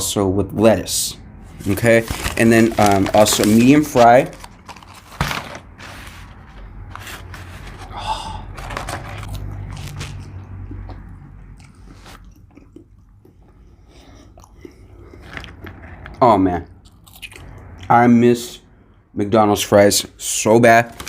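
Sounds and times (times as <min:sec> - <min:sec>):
chewing crunchy fries: 0:08.6 - 0:17.9.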